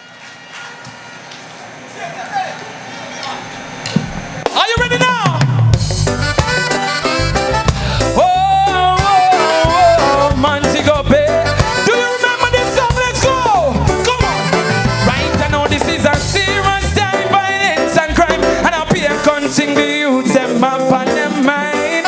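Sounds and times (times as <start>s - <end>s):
live reggae band playing: 4.0s - 22.0s.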